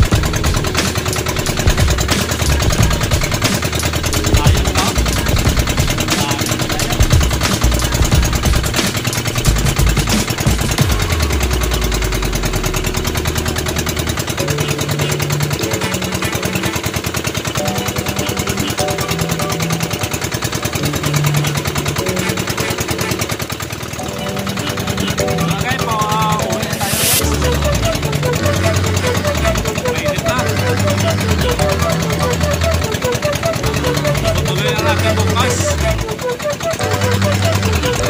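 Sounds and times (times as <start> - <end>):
boat engine knocking: 0.0 - 38.0.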